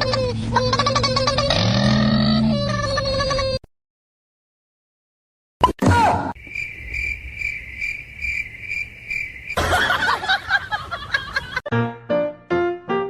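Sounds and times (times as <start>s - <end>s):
cricket-like chirping: 6.3s - 11.6s.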